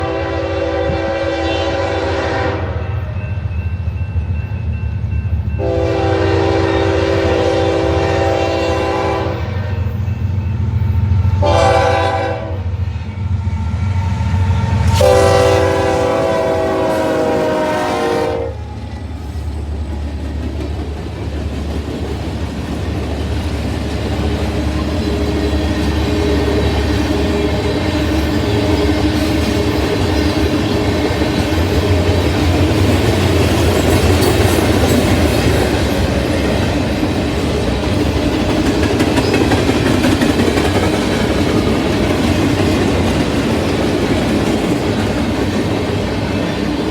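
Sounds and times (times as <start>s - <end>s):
train horn blasts: 0.0s - 3.2s, 5.6s - 10.0s, 11.2s - 13.3s, 13.9s - 18.8s
train rumble: 0.0s - 46.9s.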